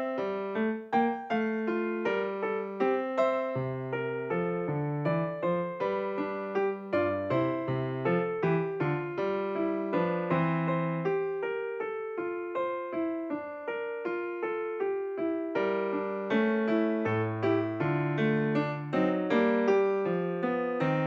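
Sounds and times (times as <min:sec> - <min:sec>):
soft electric piano notes: 0:00.0 - 0:21.0.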